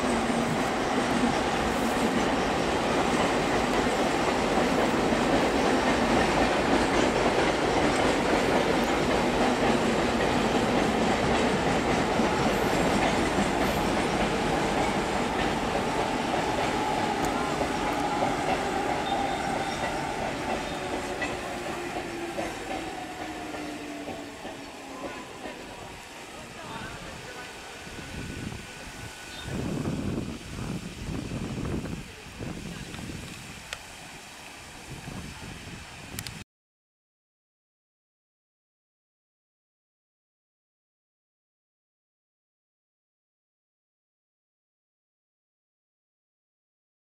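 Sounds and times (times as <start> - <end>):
electric train rolling on rails: 0.0 - 36.4.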